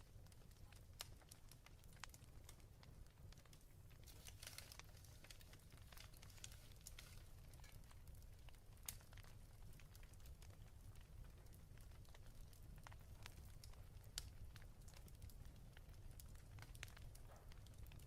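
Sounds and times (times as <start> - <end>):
fireplace crackling: 0.0 - 18.0.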